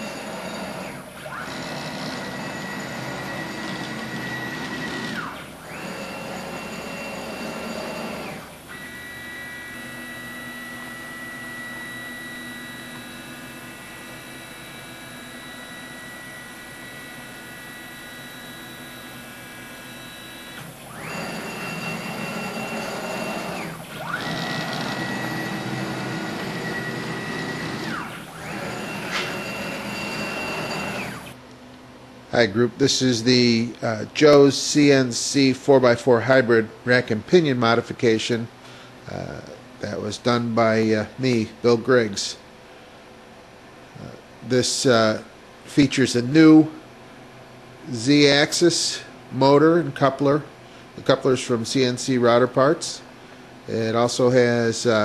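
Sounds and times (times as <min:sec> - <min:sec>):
stepper motors whining: 0:00.0 - 0:31.4.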